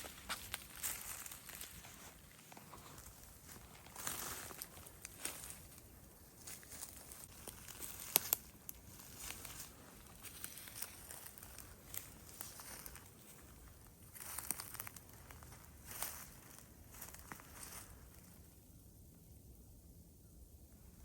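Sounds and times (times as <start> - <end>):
crinkling crackles: 0.0 - 18.0
footsteps crunching on ground: 0.0 - 18.2.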